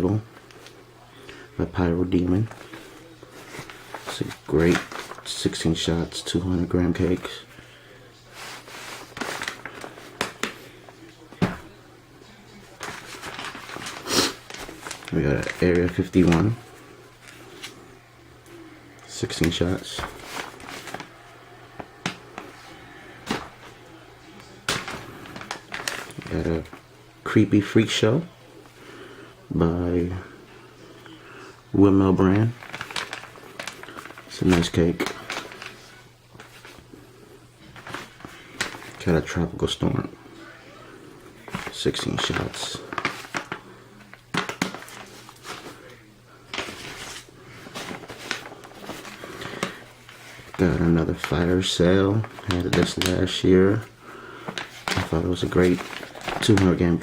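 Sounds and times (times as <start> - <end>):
boxes rustling: 2.2 - 7.6, 8.3 - 17.8, 19.1 - 26.8, 32.2 - 36.9, 37.6 - 39.3, 41.2 - 57.0.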